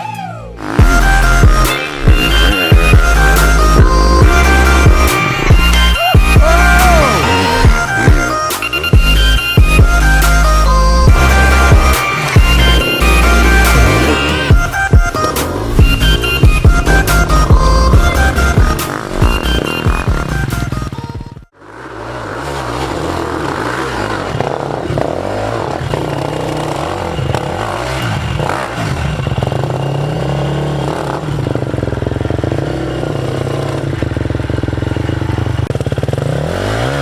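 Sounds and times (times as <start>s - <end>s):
electronic music: 0.0s - 21.4s
dirt bike engine revving: 0.5s - 37.0s.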